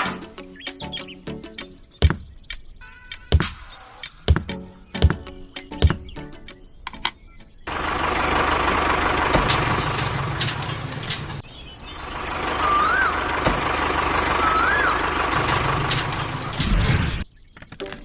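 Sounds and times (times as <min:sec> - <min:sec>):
rising and falling whistles: 0:12.5 - 0:13.3, 0:14.3 - 0:15.3.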